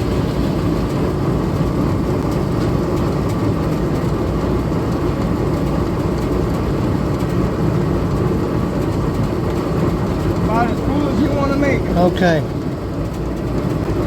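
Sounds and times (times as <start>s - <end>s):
gasoline engine running: 0.0s - 14.0s.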